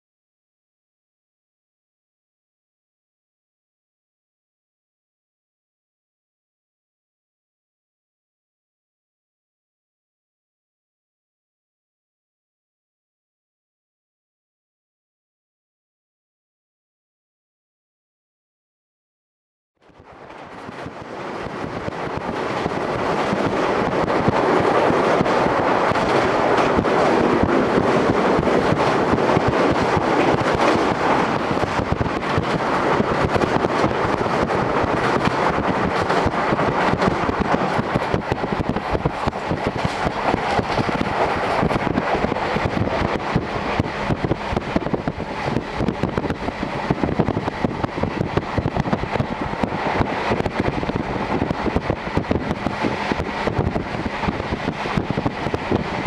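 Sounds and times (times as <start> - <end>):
train running noise and wind: 19.8 - 56.0.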